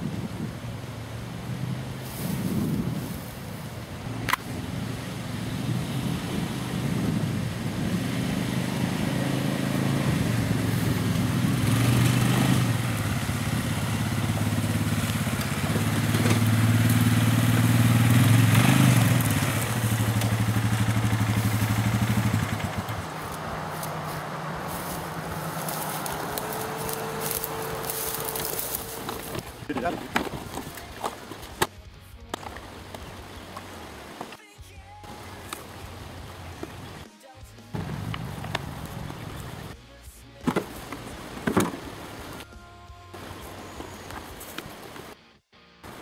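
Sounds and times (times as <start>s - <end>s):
small gasoline engine running: 9.0s - 23.8s.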